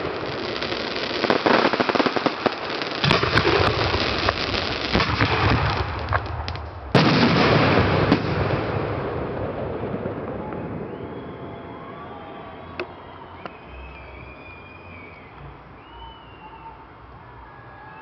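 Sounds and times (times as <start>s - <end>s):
firework shells bursting: 0.0s - 8.4s
firework crackling: 0.0s - 17.1s.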